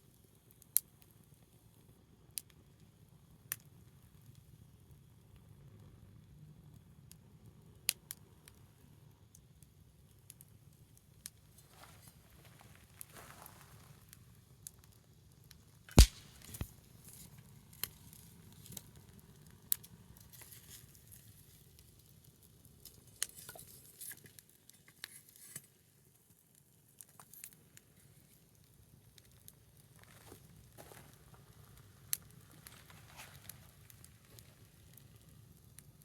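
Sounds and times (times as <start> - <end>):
wood fire crackling and popping: 15.9 - 16.8, 28.2 - 36.0
sharp crack of fire: 15.9 - 23.4.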